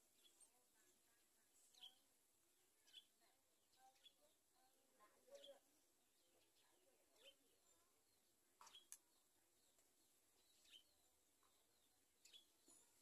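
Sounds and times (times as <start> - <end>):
faint bird chirps: 0.0 - 2.2, 2.8 - 13.0.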